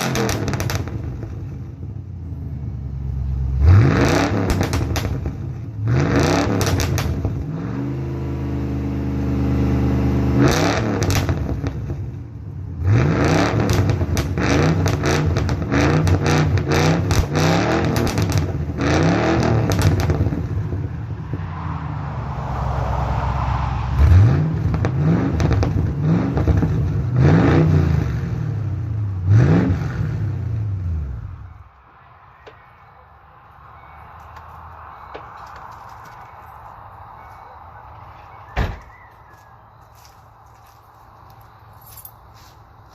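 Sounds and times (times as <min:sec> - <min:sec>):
exhaust popping and crackling: 0:00.0 - 0:07.6, 0:10.4 - 0:21.3, 0:24.0 - 0:30.7
car engine revving: 0:00.0 - 0:31.4.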